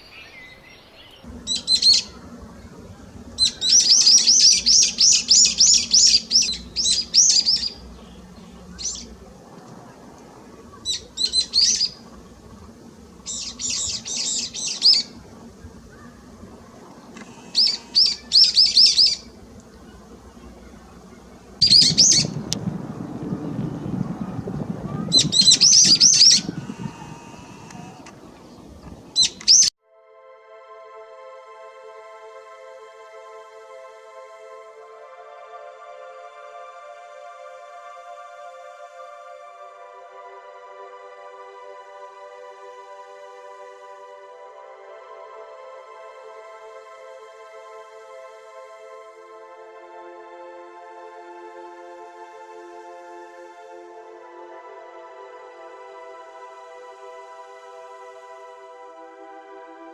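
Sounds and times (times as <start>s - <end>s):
songbird chirping: 0.0s - 29.7s
low rushing noise: 0.6s - 29.7s.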